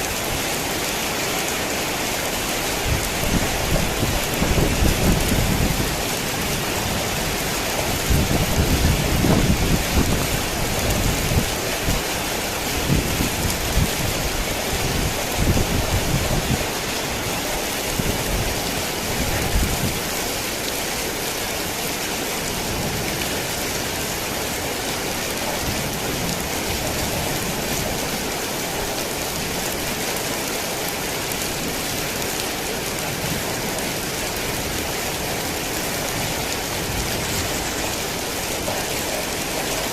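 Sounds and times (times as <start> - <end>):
heavy rain: 0.0 - 39.9
thunder rumbling: 2.8 - 12.1.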